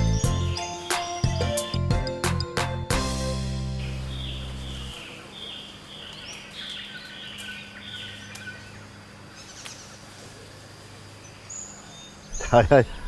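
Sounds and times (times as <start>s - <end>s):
bird chirping: 0.0s - 2.2s, 3.7s - 10.0s, 11.1s - 13.0s
theme music: 0.0s - 5.0s.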